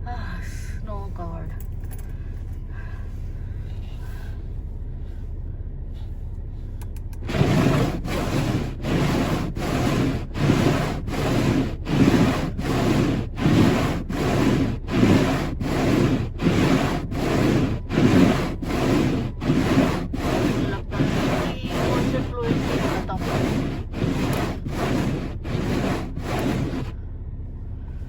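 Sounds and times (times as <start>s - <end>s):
steady low hum: 0.0s - 28.0s
snow scraped off windshield: 7.2s - 27.0s.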